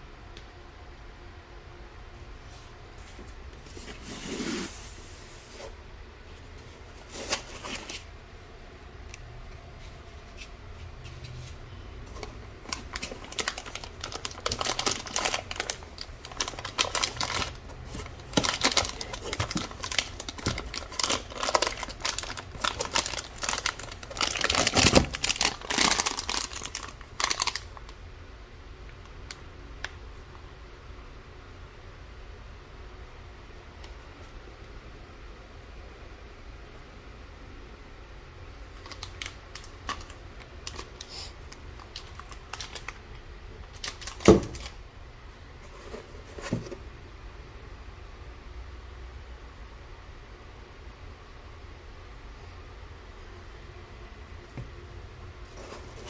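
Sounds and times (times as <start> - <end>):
hands handling packaging: 6.5 - 8.1, 9.2 - 27.8, 38.7 - 44.8
clicks rattles and crinkling: 12.1 - 27.8, 38.8 - 41.1, 41.7 - 44.8.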